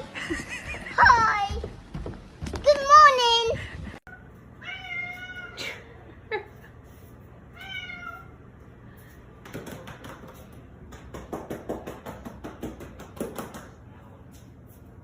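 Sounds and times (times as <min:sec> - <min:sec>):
cat meowing: 0:04.6 - 0:05.6.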